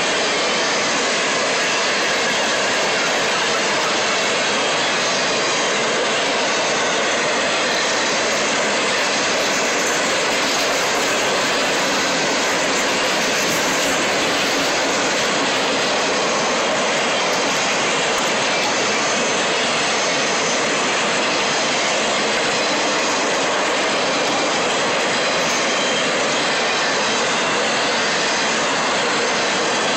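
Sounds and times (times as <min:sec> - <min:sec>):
train wheels rolling on rails: 0:00.0 - 0:29.9.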